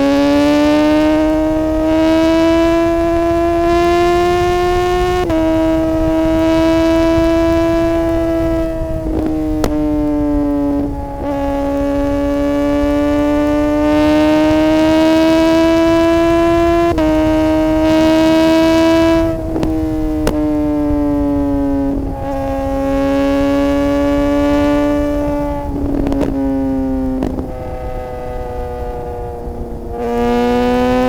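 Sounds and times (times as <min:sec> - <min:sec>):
low wind rumble: 0:00.0 - 0:31.0
sport bike accelerating: 0:00.0 - 0:31.0
gear shift crack: 0:05.3 - 0:12.8, 0:15.1 - 0:22.6, 0:23.2 - 0:28.2.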